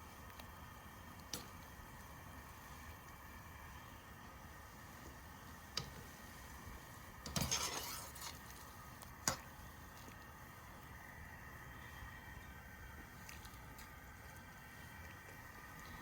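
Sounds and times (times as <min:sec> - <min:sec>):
cookware clattering scrape: 0:07.3 - 0:08.2.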